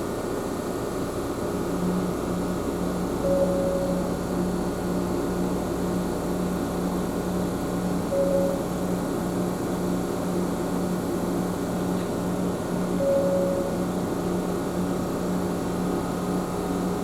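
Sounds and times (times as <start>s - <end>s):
brief higher tone: 3.2s - 4.5s, 8.1s - 8.8s, 13.0s - 14.0s.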